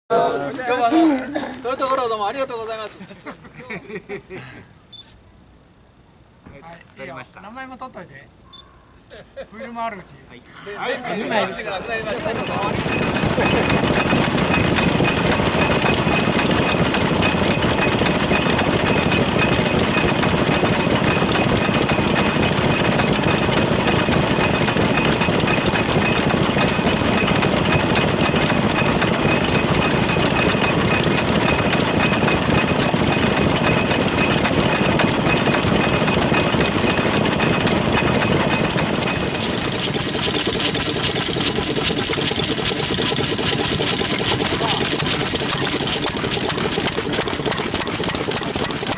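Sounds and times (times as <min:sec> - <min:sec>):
stationary engines clattering: 0:10.9 - 0:48.9.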